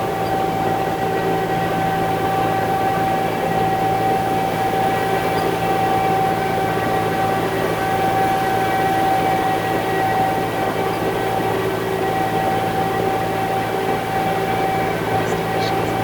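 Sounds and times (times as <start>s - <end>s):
engine whine: 0.0s - 16.0s
diesel engine drone: 6.2s - 16.0s.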